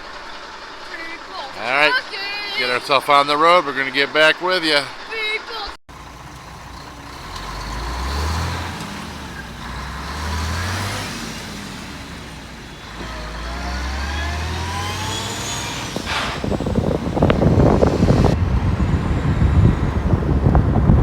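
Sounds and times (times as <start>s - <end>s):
truck engine accelerating: 5.9s - 21.0s.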